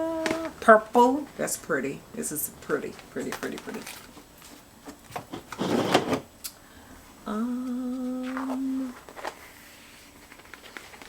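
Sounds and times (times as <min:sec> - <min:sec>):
woman humming: 0:00.0 - 0:00.6, 0:07.2 - 0:09.1.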